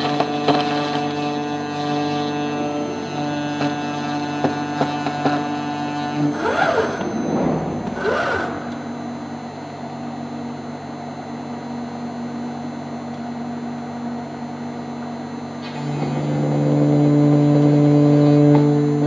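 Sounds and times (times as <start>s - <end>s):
machine whines in pitch: 0.0s - 9.7s, 15.6s - 19.0s
milling machine spindle hum: 0.0s - 19.0s.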